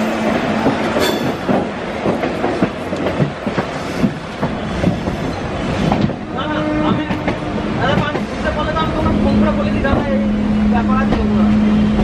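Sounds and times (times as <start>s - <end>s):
train wheels clattering: 0.0s - 6.2s
train running rumble: 0.0s - 12.0s.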